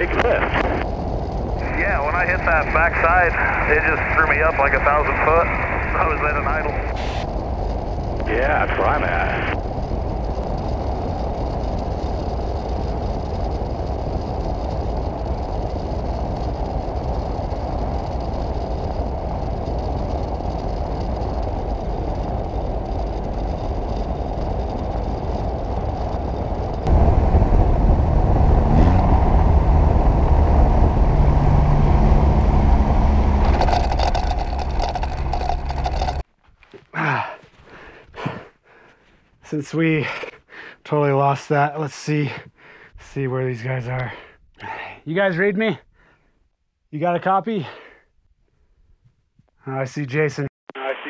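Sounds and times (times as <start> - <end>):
deep rumble with rising whine: 0.0 - 36.2
light plane engine in flight: 0.0 - 36.2
wind noise: 0.0 - 36.2.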